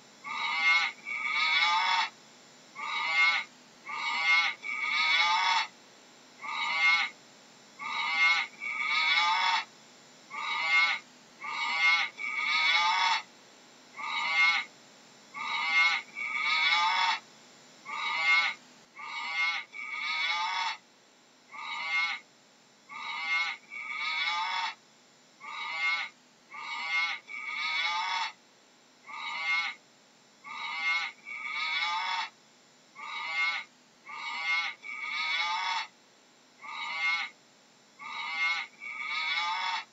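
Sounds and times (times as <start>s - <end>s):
short high-pitched animal calls: 0.2s - 2.1s, 2.8s - 5.7s, 6.4s - 7.2s, 7.8s - 9.7s, 10.3s - 13.3s, 14.0s - 14.7s, 15.4s - 17.2s, 17.8s - 20.8s, 21.5s - 22.3s, 22.9s - 24.8s, 25.4s - 28.4s, 29.0s - 29.8s, 30.4s - 32.4s, 33.0s - 36.0s, 36.6s - 37.4s, 38.0s - 39.9s.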